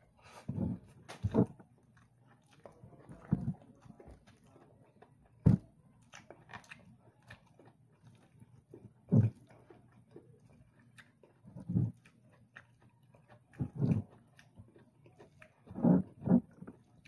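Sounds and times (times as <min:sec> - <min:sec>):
person chewing food: 0:00.1 - 0:17.0
low mouth sounds: 0:11.5 - 0:12.0, 0:13.5 - 0:14.1, 0:15.4 - 0:16.8.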